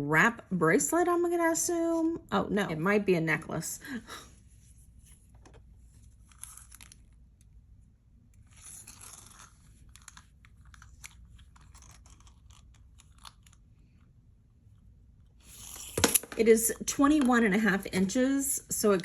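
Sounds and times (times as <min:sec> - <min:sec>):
jewelry rustling and clicking: 0:05.3 - 0:07.5, 0:08.4 - 0:14.1.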